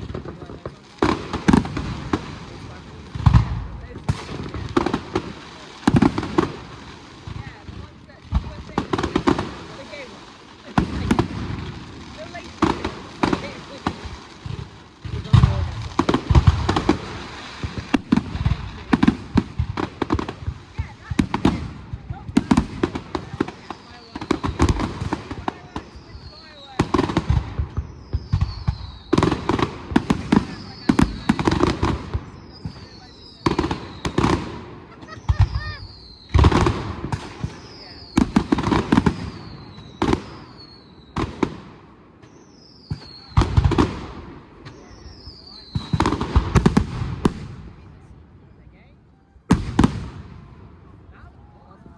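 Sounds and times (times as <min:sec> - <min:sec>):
fireworks bangs and cracks: 0:00.0 - 0:48.4, 0:49.4 - 0:51.9
firework whistles: 0:23.3 - 0:41.5, 0:42.2 - 0:44.0, 0:44.6 - 0:47.4.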